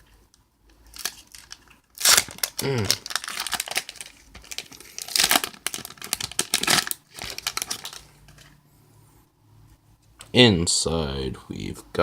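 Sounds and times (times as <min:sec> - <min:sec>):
foil wrapper tearing and crinkling: 0:00.8 - 0:08.5.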